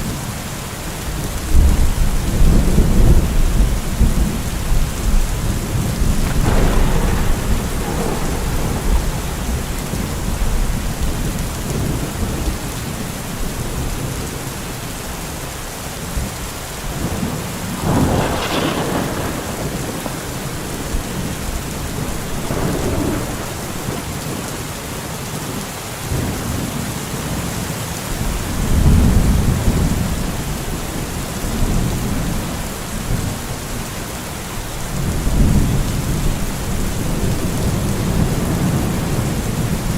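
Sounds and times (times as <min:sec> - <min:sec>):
heavy rain: 0:00.0 - 0:39.9
thunder crackle: 0:01.1 - 0:13.0, 0:16.9 - 0:24.7
rolling thunder: 0:01.1 - 0:14.0, 0:16.2 - 0:24.7, 0:28.1 - 0:33.8, 0:34.8 - 0:39.9.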